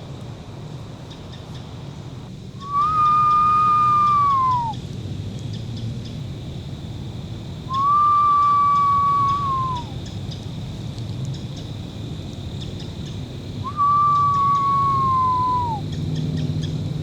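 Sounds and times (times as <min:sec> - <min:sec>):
person whistling owl call: 0:02.6 - 0:04.8, 0:07.7 - 0:10.0, 0:13.6 - 0:15.8.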